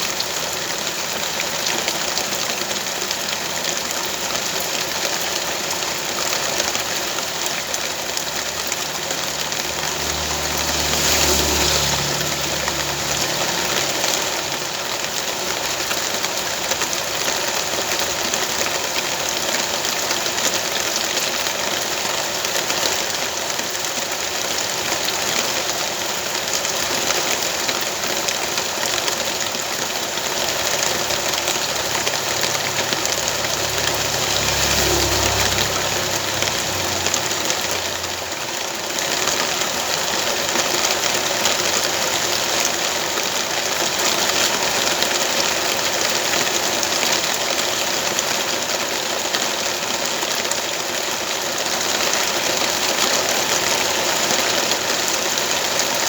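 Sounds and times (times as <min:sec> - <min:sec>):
rain hissing: 0:00.0 - 0:56.0
motor engine running low: 0:30.3 - 0:38.6.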